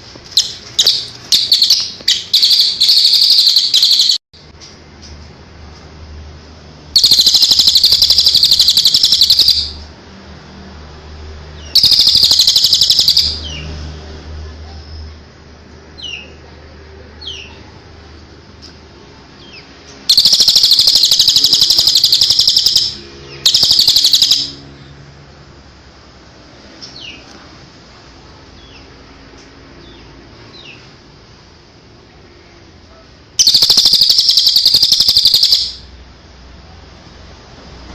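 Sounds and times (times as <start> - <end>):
songbird trilling: 0.4 - 4.2, 7.0 - 9.8, 11.7 - 13.6, 20.1 - 24.6, 33.4 - 35.9.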